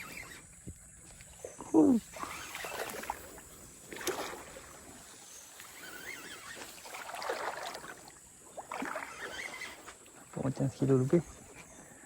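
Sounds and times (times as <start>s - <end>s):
water splashing: 0.0s - 11.6s.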